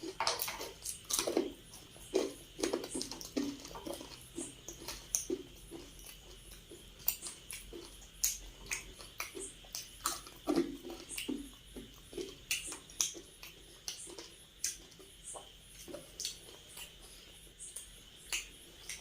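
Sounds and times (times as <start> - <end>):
wet chewing and lip smacking: 0.0 - 19.0
sharp mouth clicks: 17.6 - 19.0.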